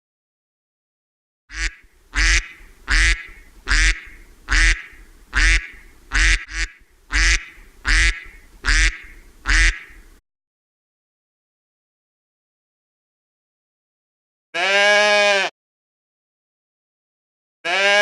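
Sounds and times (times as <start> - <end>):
duck quacking: 1.5 - 10.1.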